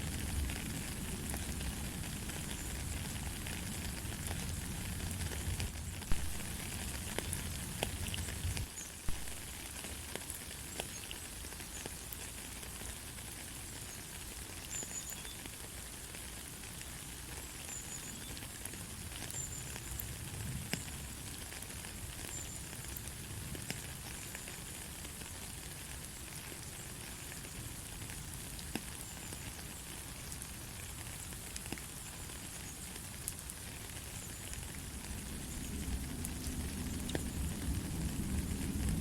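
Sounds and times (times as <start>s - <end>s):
light rain hiss: 0.0s - 39.0s.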